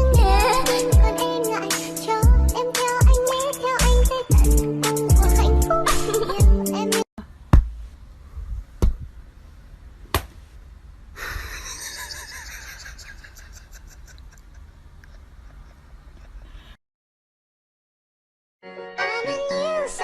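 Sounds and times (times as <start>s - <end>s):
hip-hop music: 0.0s - 7.0s
sharp knocks or slaps: 7.5s - 7.8s, 8.8s - 9.0s, 10.1s - 10.4s.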